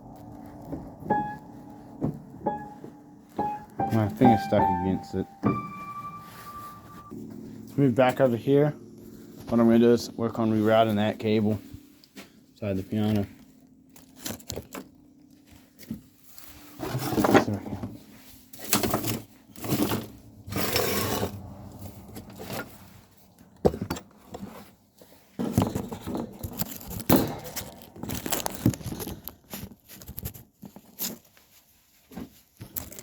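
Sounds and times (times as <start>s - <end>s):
cable handling scrapes and knocks: 16.7s - 18.0s, 18.6s - 31.3s.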